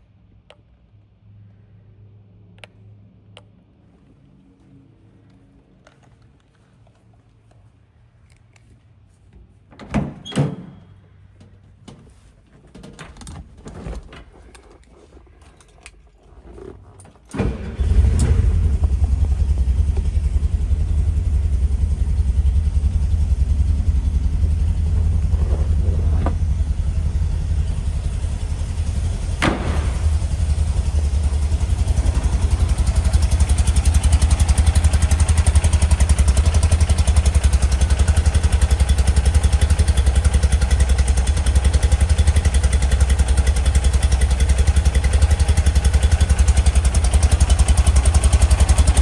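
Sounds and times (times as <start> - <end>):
engine starting and idling: 16.5 - 49.0.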